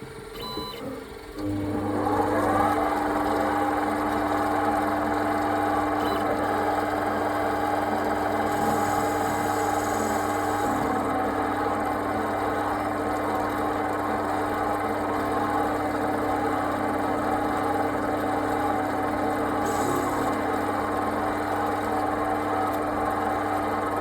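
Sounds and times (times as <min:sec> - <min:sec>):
small electric motor humming: 0:08.3 - 0:11.1.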